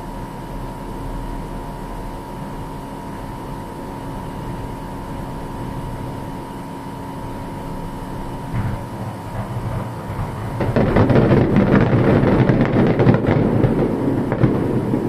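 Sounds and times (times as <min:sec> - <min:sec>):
fireworks rumbling: 0:08.4 - 0:15.0
fireworks crackling: 0:08.6 - 0:15.0.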